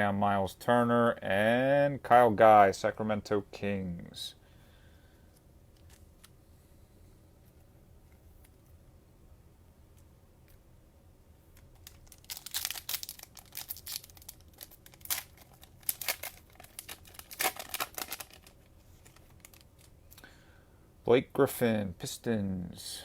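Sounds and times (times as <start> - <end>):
cellophane wrapper crackling: 11.6 - 20.2.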